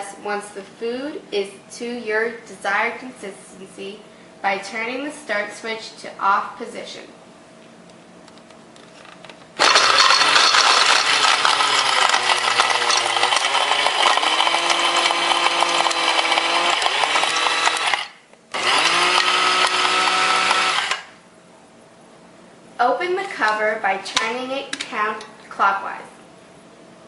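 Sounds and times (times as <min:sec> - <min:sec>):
grinder motor whining: 0:09.6 - 0:21.1.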